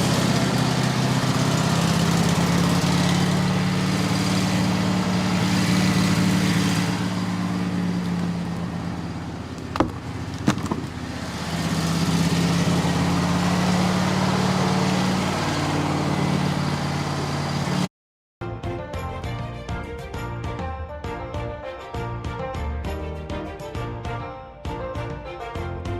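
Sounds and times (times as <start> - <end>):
band sawmill engine hum: 0.0 - 17.9
sharp knocks: 9.7 - 10.9.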